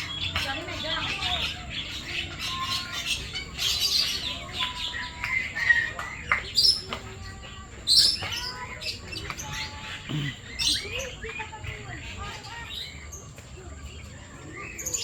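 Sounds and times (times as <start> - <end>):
birds chirping and calling: 0.0 - 15.0.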